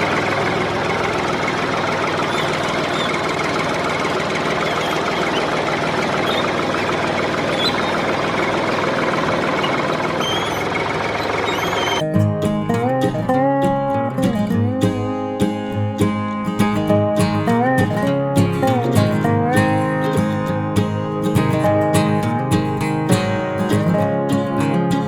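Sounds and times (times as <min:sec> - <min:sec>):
small motor rattling: 0:00.0 - 0:12.0.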